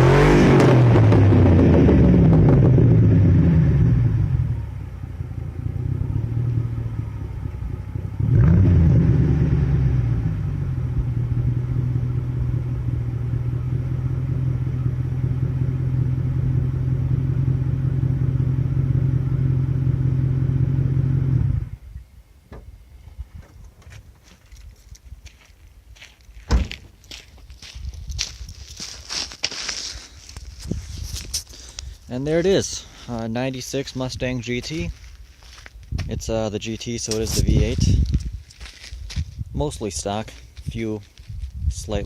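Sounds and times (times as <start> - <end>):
car engine: 0.0 - 24.1.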